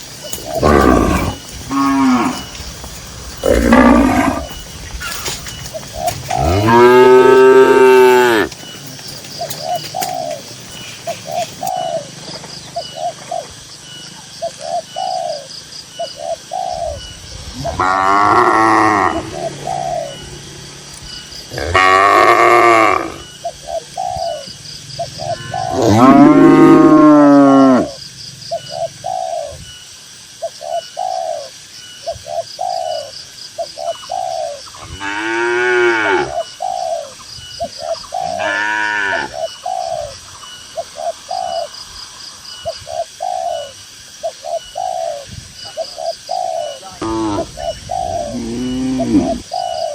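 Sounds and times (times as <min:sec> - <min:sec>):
cattle mooing: 0:00.5 - 0:02.6, 0:03.4 - 0:04.6, 0:06.3 - 0:08.6, 0:17.7 - 0:19.4, 0:21.5 - 0:23.2, 0:25.3 - 0:27.9, 0:38.2 - 0:39.3, 0:48.3 - 0:49.4.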